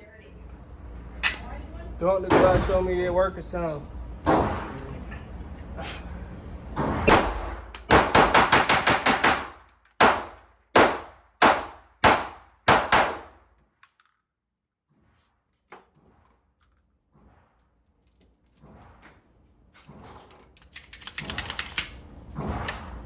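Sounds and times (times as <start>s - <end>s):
pistol shots: 7.0s - 13.4s.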